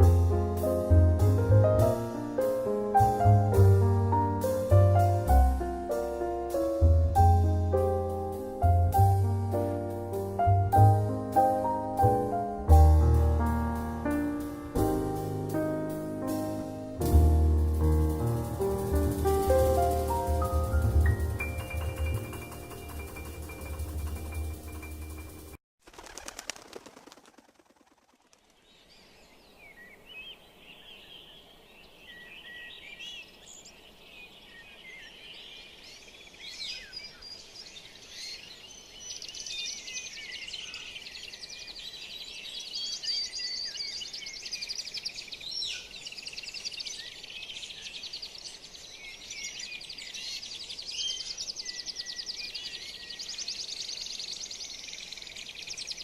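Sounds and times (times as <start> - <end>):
birds chirping and trilling: 19.1 - 25.6, 28.4 - 56.0.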